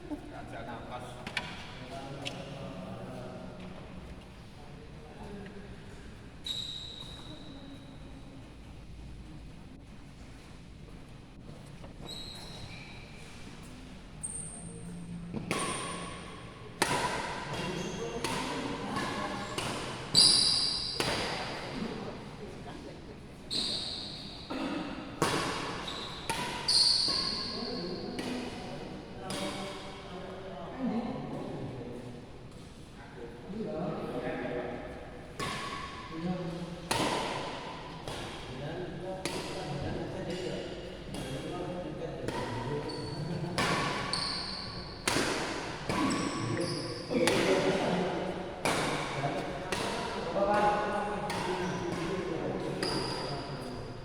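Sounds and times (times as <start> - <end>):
shoes squeaking on court floor: 1.4 - 2.6, 6.4 - 8.0, 11.9 - 16.2, 17.5 - 21.8, 23.4 - 24.5, 25.2 - 29.9, 42.3 - 47.5, 51.3 - 54.0
racket hitting shuttlecock: 16.8 - 20.2, 20.9 - 21.8, 25.2 - 27.5, 35.4 - 36.0, 36.9 - 38.5, 39.2 - 40.4, 42.2 - 46.6, 47.2 - 48.0, 48.6 - 53.8
racket striking shuttlecock: 36.9 - 38.5, 44.9 - 46.5, 47.2 - 47.8, 48.6 - 50.2.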